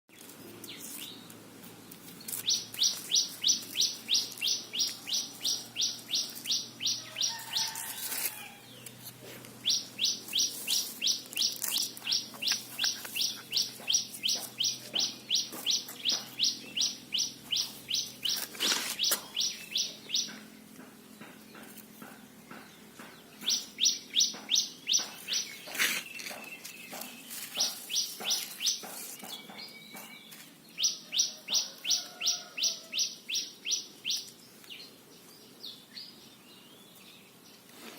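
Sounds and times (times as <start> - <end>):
squirrel alarm chirps: 2.4 - 7.8, 9.6 - 20.4, 23.4 - 25.7.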